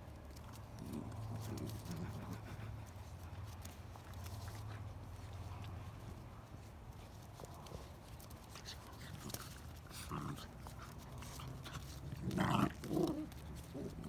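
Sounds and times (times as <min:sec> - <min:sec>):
puppies scratching and tapping: 0:00.0 - 0:14.0.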